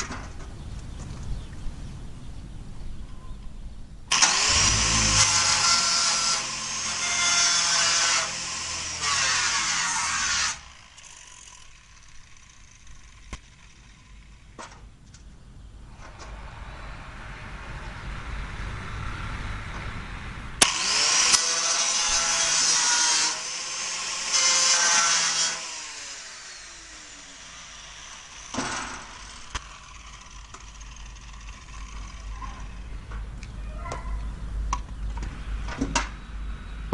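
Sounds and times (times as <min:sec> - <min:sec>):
angle grinder whining and grinding: 0:04.1 - 0:14.4, 0:20.6 - 0:32.9.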